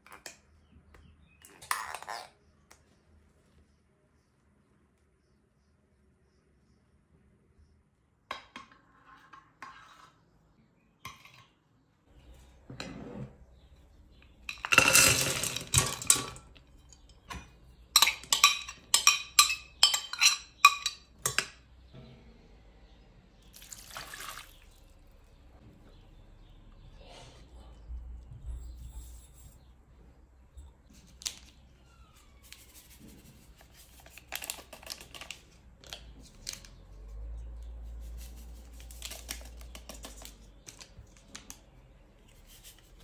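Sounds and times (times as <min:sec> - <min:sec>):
utensils clinking against glass: 0:14.4 - 0:21.6.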